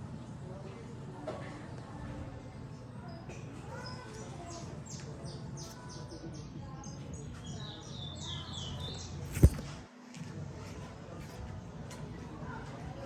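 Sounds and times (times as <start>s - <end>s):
small birds chirping: 2.5s - 9.7s.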